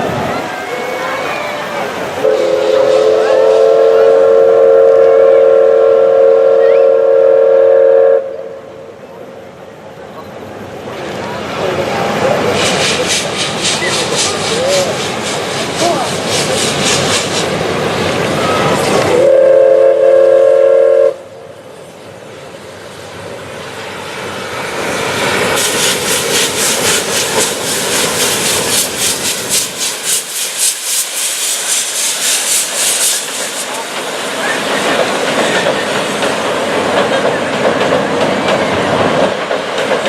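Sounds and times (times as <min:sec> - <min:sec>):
train passing with rapid beat: 0:00.0 - 0:40.0
steam locomotive whistle: 0:00.3 - 0:08.9, 0:18.4 - 0:21.4
coaches clattering over rail joints: 0:25.2 - 0:40.0.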